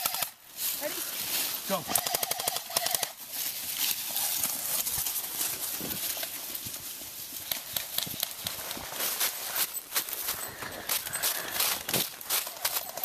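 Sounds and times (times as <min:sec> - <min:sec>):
running footsteps: 0:00.7 - 0:13.0
rustling near microphone: 0:03.1 - 0:13.0.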